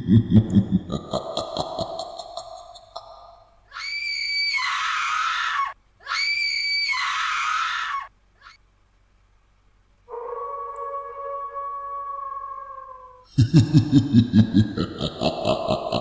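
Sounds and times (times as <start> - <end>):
long shrill screams: 3.7 - 8.6, 10.1 - 13.2
eerie tone: 10.1 - 16.0.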